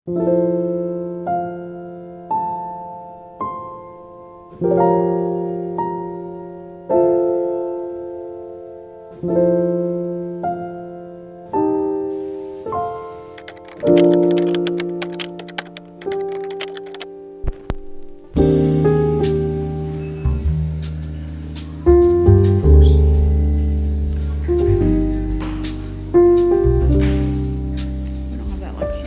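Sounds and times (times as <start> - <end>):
slow gentle piano music: 0.1 - 29.0
sharp clicks: 13.3 - 17.9.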